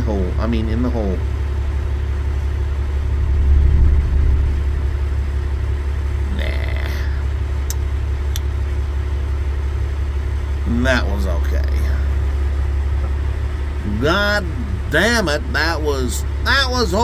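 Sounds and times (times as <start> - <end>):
vehicle engine idling: 0.0 - 17.0
distant quarry blast rumble: 2.6 - 6.4.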